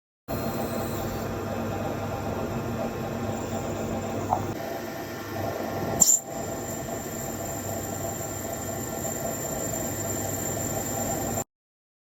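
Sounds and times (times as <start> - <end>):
machine whirring with high whine: 0.3 - 11.5.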